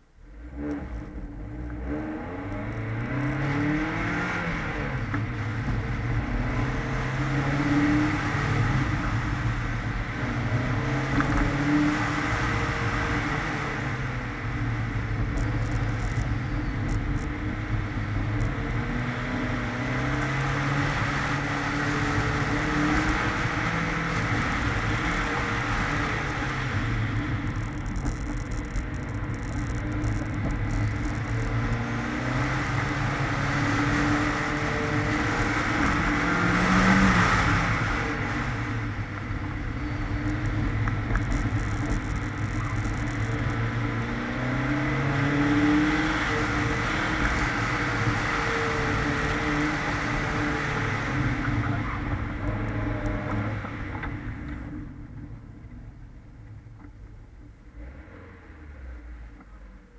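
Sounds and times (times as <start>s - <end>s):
car engine revving: 0.3s - 56.0s.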